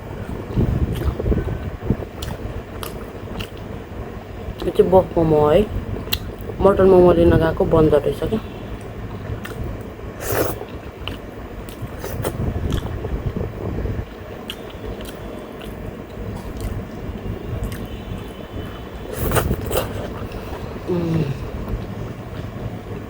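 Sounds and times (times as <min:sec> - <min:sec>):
fan humming: 0:00.0 - 0:23.0
chewing food: 0:00.5 - 0:03.7, 0:08.8 - 0:13.0, 0:14.4 - 0:22.6
crunchy bite: 0:19.1 - 0:21.5.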